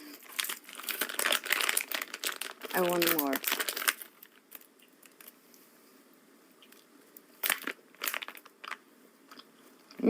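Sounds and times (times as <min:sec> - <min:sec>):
plastic snack packet rustling: 0:00.1 - 0:05.4, 0:06.7 - 0:08.8.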